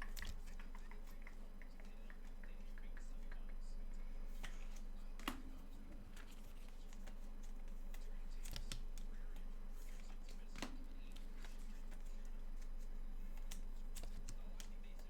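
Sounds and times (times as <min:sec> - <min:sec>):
cards rustling: 0:00.0 - 0:03.4, 0:04.3 - 0:15.0
steady low hum: 0:00.0 - 0:15.0
light clicks and taps: 0:06.2 - 0:15.0.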